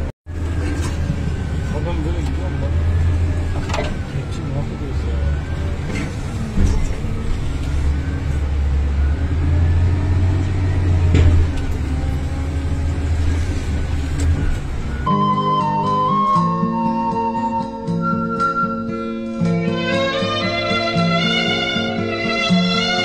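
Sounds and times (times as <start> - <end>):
digger diesel engine running: 0.0 - 15.3
flute music: 14.4 - 23.0.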